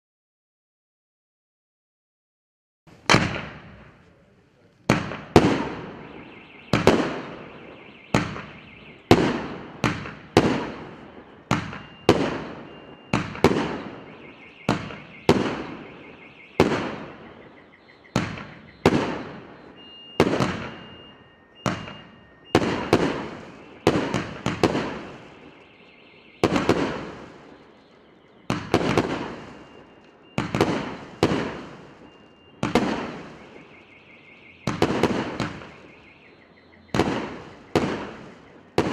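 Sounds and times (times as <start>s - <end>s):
fireworks bangs: 2.9s - 38.9s
faint high steady tone: 10.8s - 28.5s.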